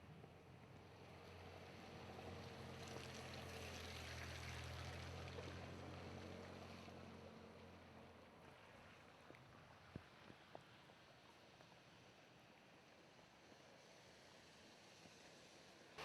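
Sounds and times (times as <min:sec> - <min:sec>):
faint rain: 0:00.2 - 0:16.0
vehicle passing on wet street: 0:00.9 - 0:10.8.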